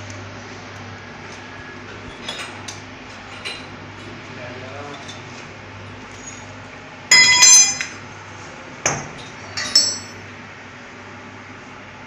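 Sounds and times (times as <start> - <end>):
low machinery hum: 0.0 - 12.0
ringing clinks of hard objects: 7.1 - 8.0, 9.5 - 10.2.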